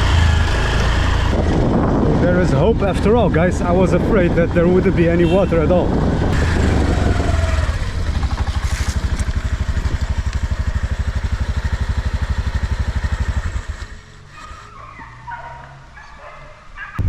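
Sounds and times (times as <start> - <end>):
motorbike engine idling: 4.6 - 15.6.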